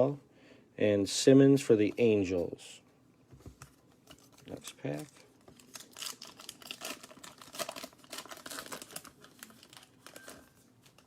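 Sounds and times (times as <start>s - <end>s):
foil wrapper tearing and crinkling: 4.1s - 11.0s.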